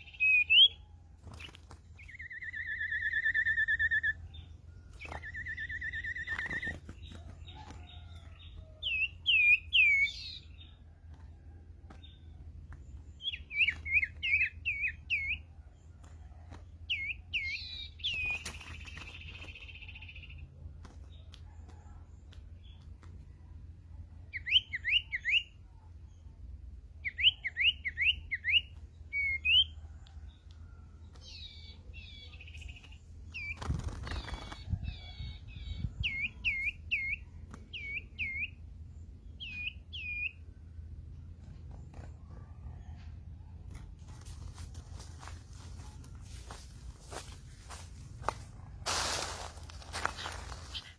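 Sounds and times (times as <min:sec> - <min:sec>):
bird chirping: 0:00.0 - 0:10.8, 0:12.0 - 0:21.2, 0:24.0 - 0:44.2.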